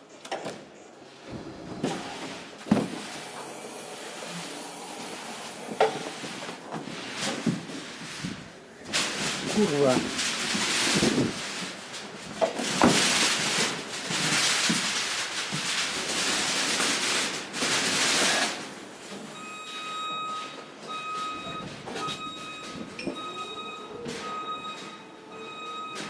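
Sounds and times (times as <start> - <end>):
loud rushing hiss: 1.2 - 6.5
electronic warning beep: 19.3 - 26.0.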